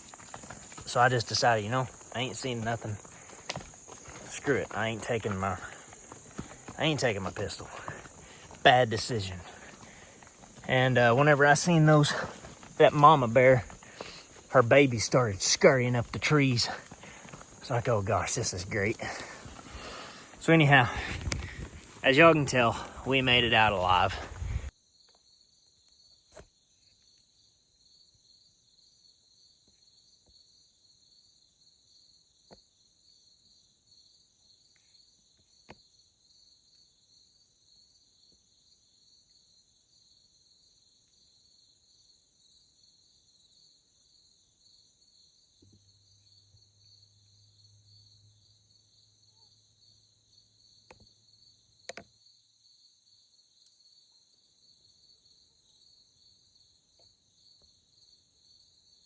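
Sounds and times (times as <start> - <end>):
night insects trilling: 0.0 - 59.0.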